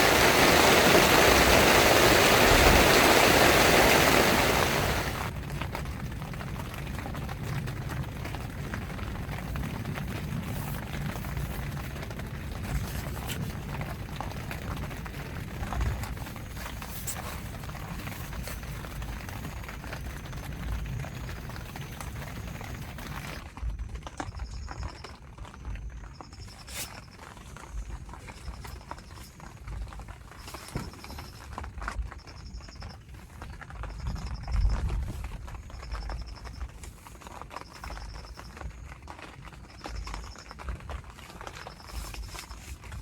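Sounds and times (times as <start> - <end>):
low steady rumble: 0.0 - 26.6
raindrops ticking on tent fabric: 0.0 - 43.0.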